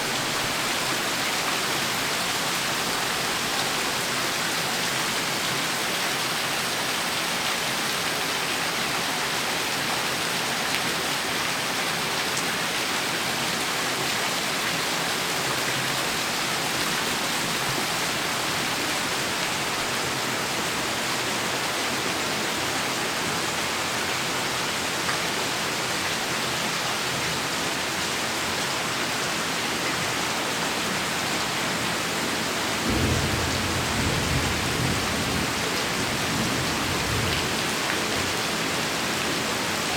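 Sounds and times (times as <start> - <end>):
heavy rain hissing: 0.0 - 7.7, 30.4 - 39.9
low rumble of thunder: 32.8 - 37.8.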